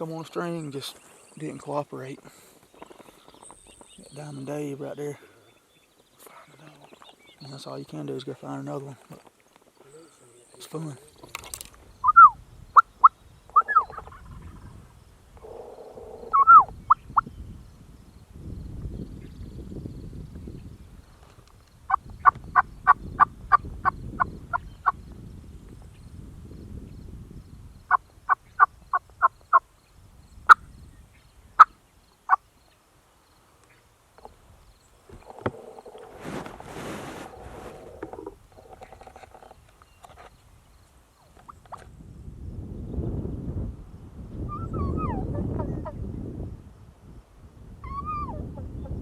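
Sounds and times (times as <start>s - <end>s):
turkey yelps: 12.0s - 12.9s, 13.6s - 14.2s, 15.4s - 17.0s, 44.5s - 46.0s, 47.8s - 48.7s
turkey rattling call: 12.0s - 14.6s, 15.4s - 17.2s
turkey clucking: 13.6s - 14.2s, 16.0s - 16.7s.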